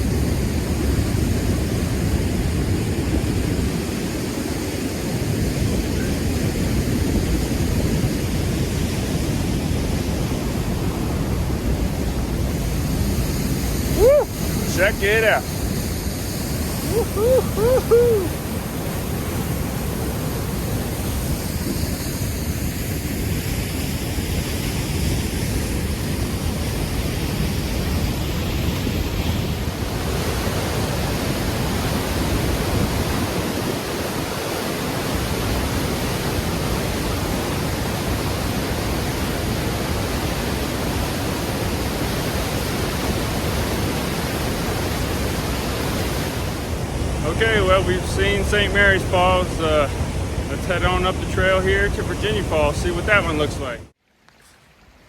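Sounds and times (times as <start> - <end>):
waterfall rushing: 9.3 - 23.1.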